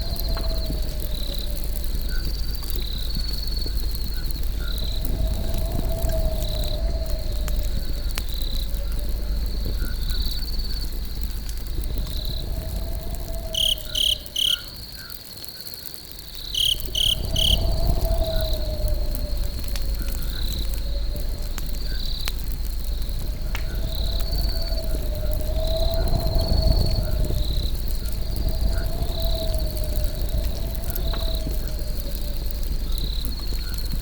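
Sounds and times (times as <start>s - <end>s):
crackling campfire: 0.0s - 34.0s
crickets chirring: 0.0s - 34.0s
loud quick chirps: 13.6s - 14.7s, 16.6s - 17.6s.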